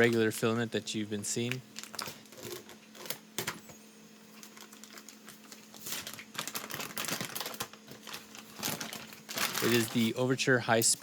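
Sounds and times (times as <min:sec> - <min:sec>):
plastic clicking and crinkling: 0:00.0 - 0:00.5, 0:01.4 - 0:03.7, 0:04.4 - 0:10.2
faint steady hum: 0:00.0 - 0:11.0.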